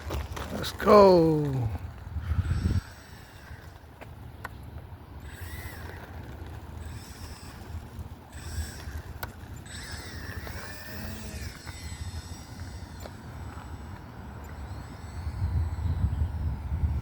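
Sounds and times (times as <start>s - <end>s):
wind rumble on microphone: 1.6s - 3.6s, 14.8s - 17.0s
model plane motor whining: 2.2s - 4.1s, 5.1s - 17.0s.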